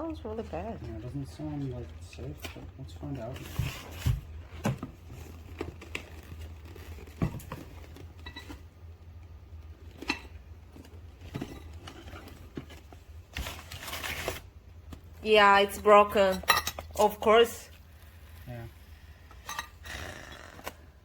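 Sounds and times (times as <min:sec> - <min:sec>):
cardboard package being handled: 0:03.0 - 0:08.7, 0:10.7 - 0:15.1
cardboard tearing: 0:13.3 - 0:14.6.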